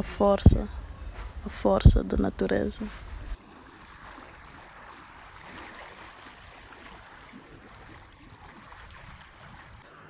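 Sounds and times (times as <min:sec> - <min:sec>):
sea waves washing: 0:00.0 - 0:10.0.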